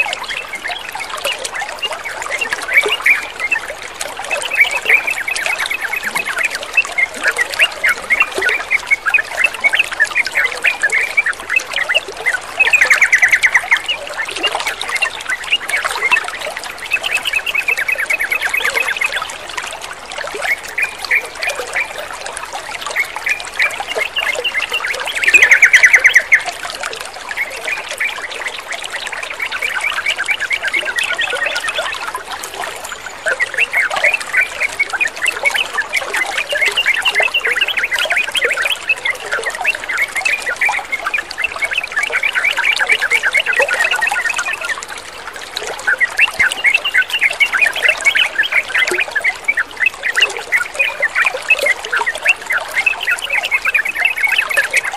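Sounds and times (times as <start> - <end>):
trickling water: 0.0 - 54.9
birds chattering: 1.8 - 11.4, 22.9 - 26.4, 33.0 - 44.8, 45.8 - 54.9.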